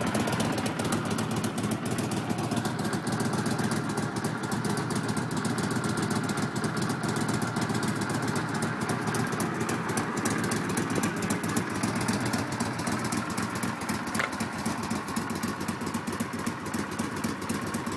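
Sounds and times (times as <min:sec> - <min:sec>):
motorcycle engine idling: 0:00.0 - 0:17.9.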